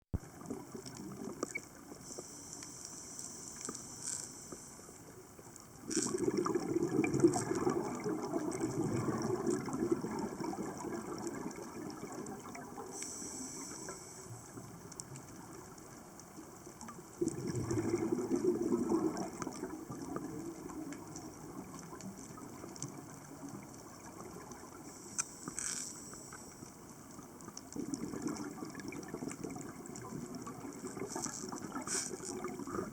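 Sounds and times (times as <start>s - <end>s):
faint water trickling: 0.2s - 32.9s
small clicks: 0.5s - 6.2s, 19.3s - 28.4s.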